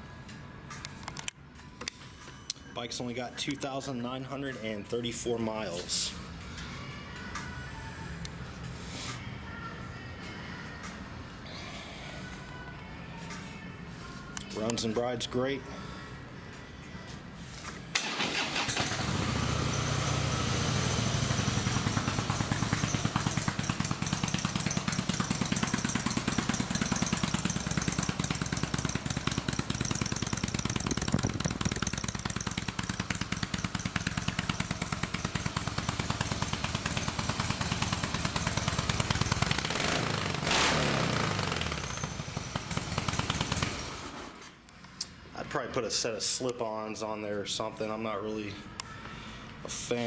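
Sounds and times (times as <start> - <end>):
motorcycle engine running: 18.6 - 44.2.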